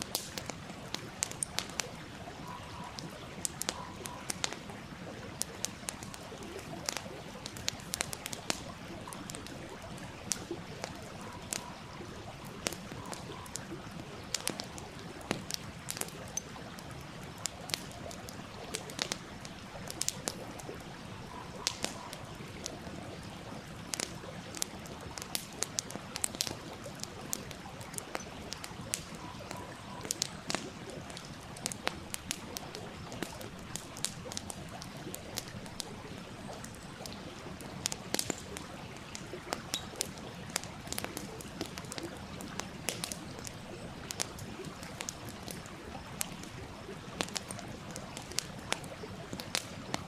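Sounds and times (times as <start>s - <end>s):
campfire crackling: 0.0s - 50.0s
stream flowing: 0.0s - 50.0s.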